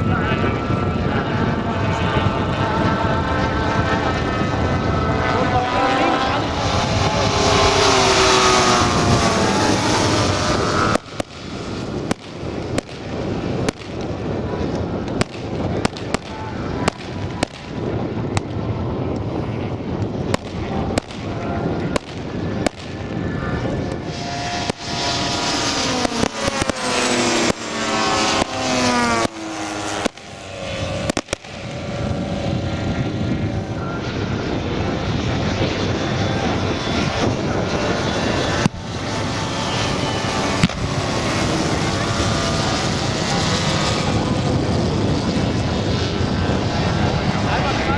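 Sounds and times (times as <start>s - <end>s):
model plane engines passing: 0.0s - 47.9s
pyrotechnic bangs: 10.0s - 32.0s.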